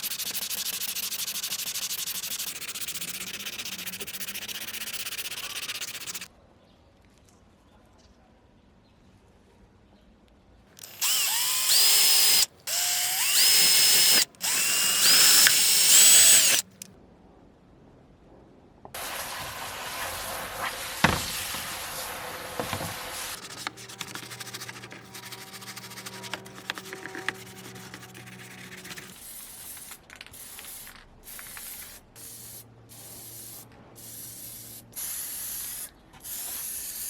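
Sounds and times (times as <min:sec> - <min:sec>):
power drill whining: 0:02.0 - 0:06.3, 0:10.8 - 0:16.9, 0:22.6 - 0:29.2.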